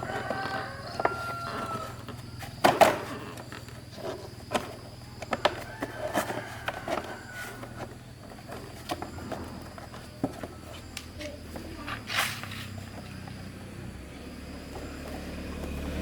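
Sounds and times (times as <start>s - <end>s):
chickens calling: 0.0s - 11.4s.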